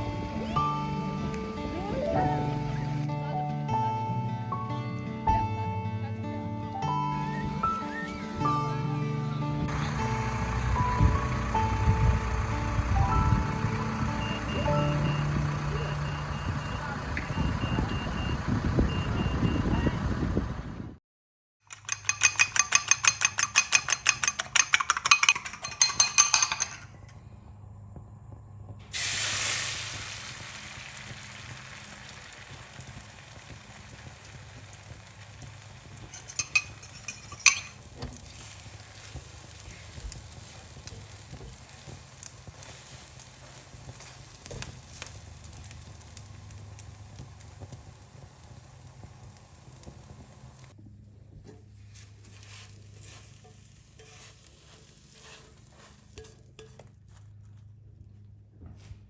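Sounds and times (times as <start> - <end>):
utensils clinking: 21.7 - 27.2, 35.8 - 46.9, 51.5 - 57.2
food sizzling in frying pan: 28.9 - 50.8, 51.9 - 56.8.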